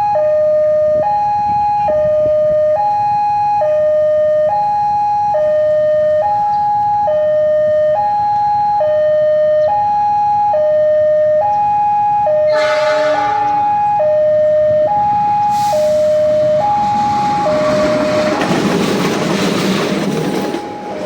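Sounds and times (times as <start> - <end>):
two-tone crossing alarm: 0.0 - 19.2
train horn blast: 12.4 - 18.6.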